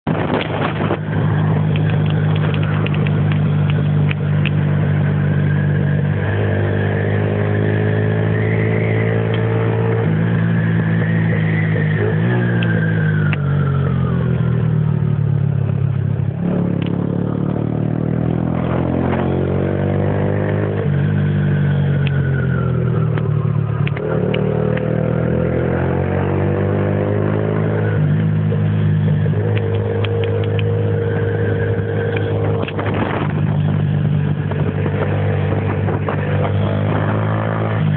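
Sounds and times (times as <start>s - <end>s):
motorcycle engine idling and revving: 0.0s - 37.9s.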